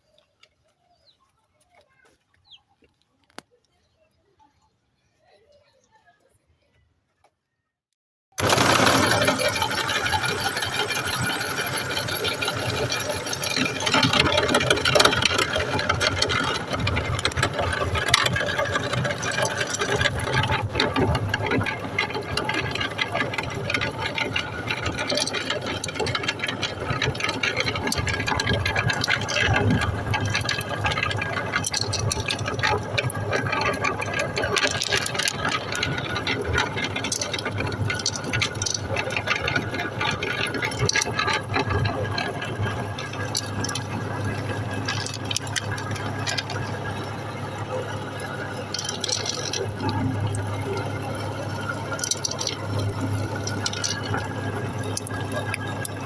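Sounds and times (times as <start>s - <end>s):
meat grinder running: 8.3s - 56.0s
candy rattling and cracking: 12.3s - 47.2s, 47.9s - 56.0s.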